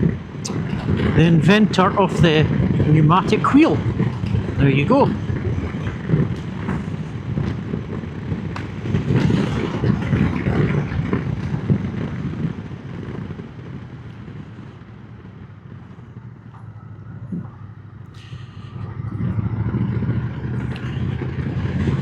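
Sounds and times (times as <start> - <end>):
wind rush on microphone: 0.0 - 22.0
motorcycle engine running: 18.4 - 22.0.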